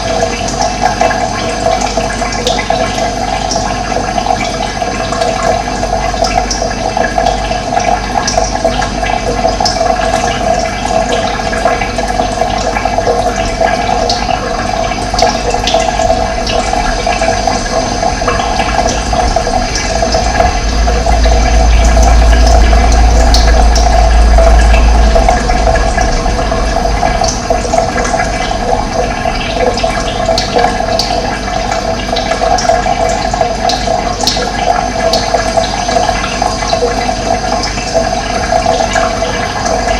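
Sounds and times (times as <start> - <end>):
water rushing: 0.0 - 39.9
deep rumble: 9.9 - 39.9.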